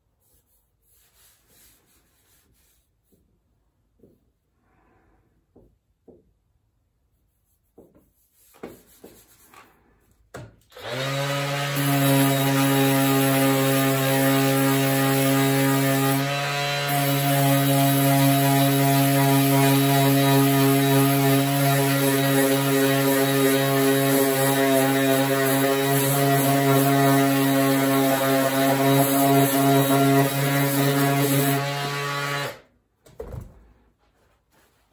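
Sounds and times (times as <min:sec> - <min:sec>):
electric sander grinding: 0:10.8 - 0:32.6.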